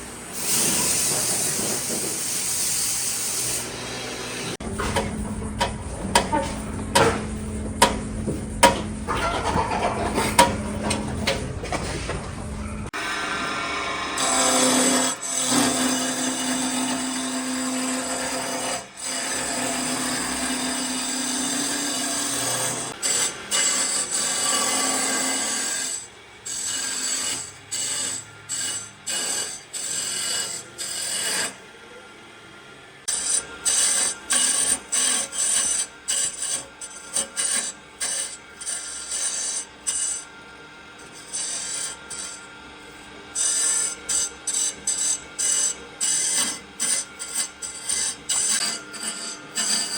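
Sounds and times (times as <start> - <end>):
power tool working wood: 12.6 - 49.9.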